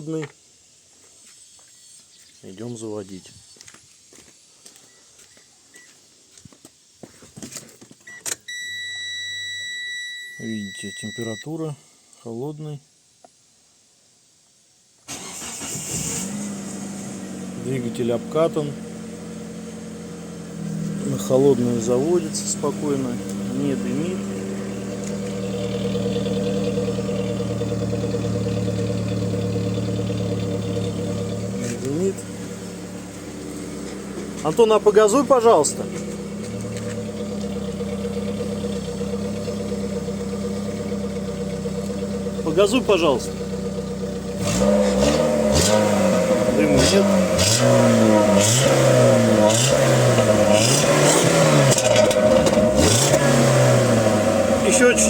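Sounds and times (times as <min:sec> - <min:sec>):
petrol engine idling: 0:15.1 - 0:47.4.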